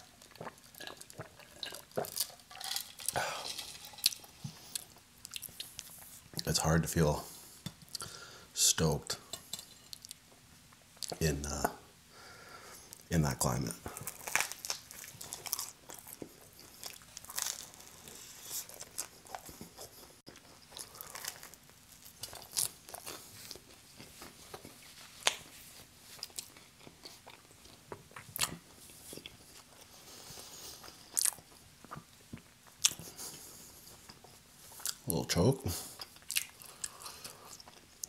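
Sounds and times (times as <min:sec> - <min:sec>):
chewing and crunching pizza crust: 0:00.0 - 0:06.5, 0:13.8 - 0:38.0.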